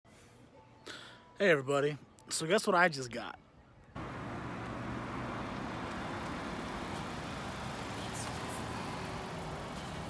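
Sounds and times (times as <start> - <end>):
road traffic rumble: 4.0 - 10.0.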